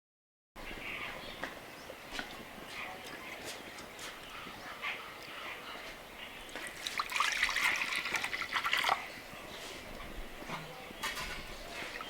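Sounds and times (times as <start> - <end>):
water pouring and splashing: 6.5 - 9.1.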